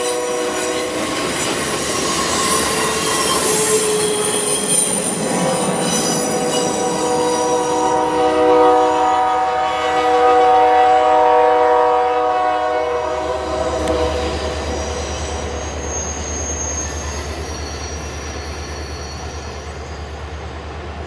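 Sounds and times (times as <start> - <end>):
high wheel squeal: 0.0 - 10.0, 12.7 - 20.5
diesel locomotive horn: 0.0 - 15.8
train rumbling past: 0.0 - 21.0.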